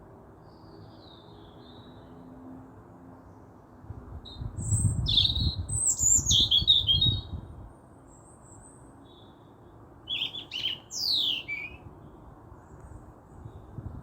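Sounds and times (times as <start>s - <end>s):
birds chirping and calling: 4.6s - 7.2s, 10.1s - 11.8s.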